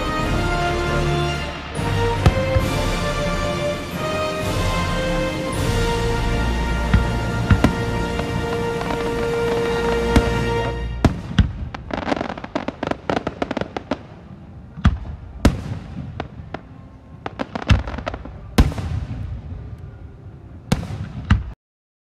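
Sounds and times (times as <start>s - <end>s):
fireworks crackling bangs: 0.0s - 19.7s, 20.7s - 21.6s.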